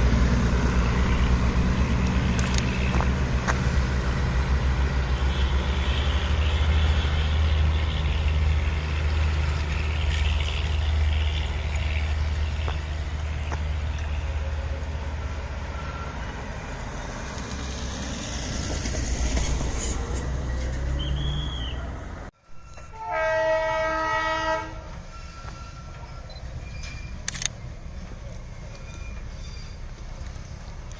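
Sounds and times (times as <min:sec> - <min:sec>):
train rumbling: 0:00.0 - 0:30.9
train horn blast: 0:22.8 - 0:25.8.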